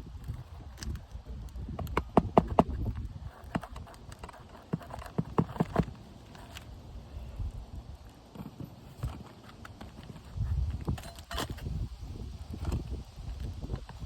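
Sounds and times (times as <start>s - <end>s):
knocks on shingle roof: 1.8s - 2.8s.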